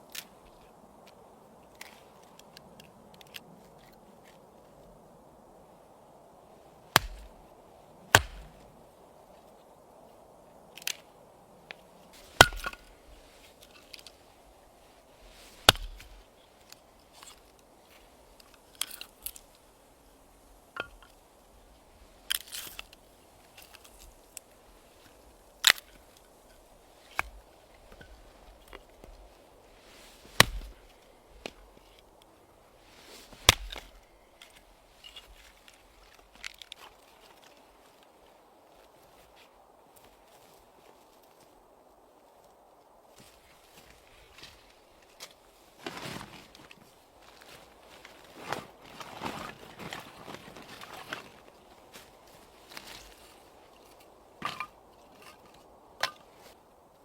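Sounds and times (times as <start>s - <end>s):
faint steady hiss: 0.0s - 57.0s
axe chopping firewood: 6.9s - 7.4s, 8.1s - 8.6s, 12.2s - 13.0s, 15.5s - 16.2s, 30.3s - 31.6s, 33.4s - 34.0s, 54.4s - 55.4s.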